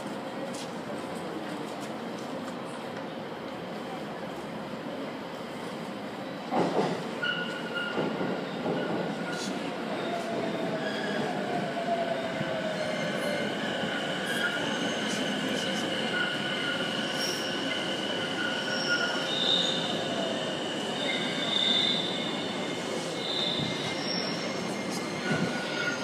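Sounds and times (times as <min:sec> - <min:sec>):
high wheel squeal: 0:21.0 - 0:26.0.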